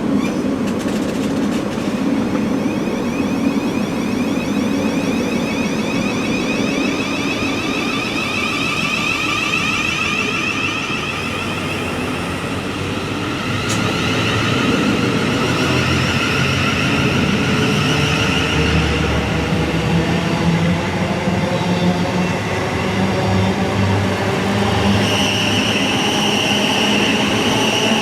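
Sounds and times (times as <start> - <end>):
wheel and track rumble: 0.0 - 3.0, 5.1 - 21.2
electric train motors whining: 0.2 - 28.0.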